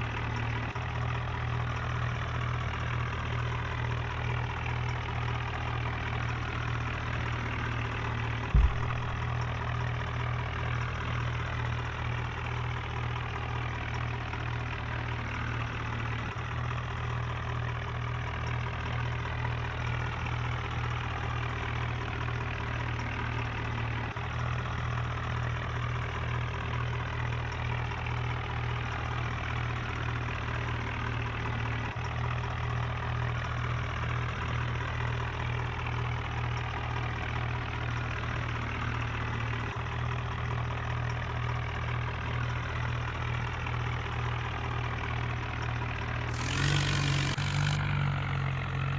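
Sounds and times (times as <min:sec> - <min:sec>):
tractor engine idling: 0:00.0 - 0:22.7, 0:39.1 - 0:48.9
short thump: 0:08.5 - 0:09.3.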